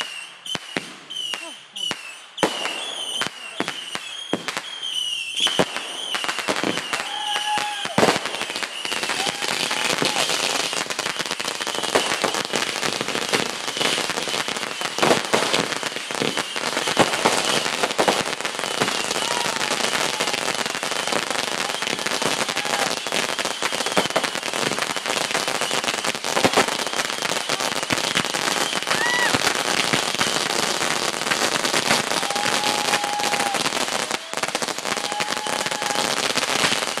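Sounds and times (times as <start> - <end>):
fireworks bangs: 0.0 - 37.0
fireworks crackling: 0.0 - 37.0.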